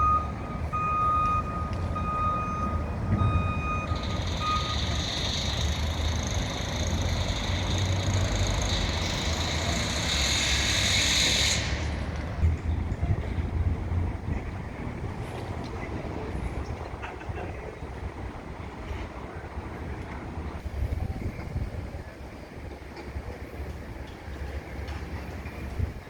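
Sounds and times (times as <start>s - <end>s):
vehicle backup alarm beeping: 0.0s - 11.0s
low engine rumble: 0.0s - 26.0s.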